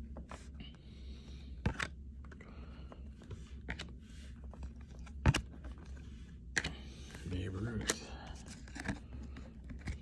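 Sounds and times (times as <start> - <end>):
low steady hum: 0.0 - 10.0
trading cards flipped through: 3.4 - 10.0.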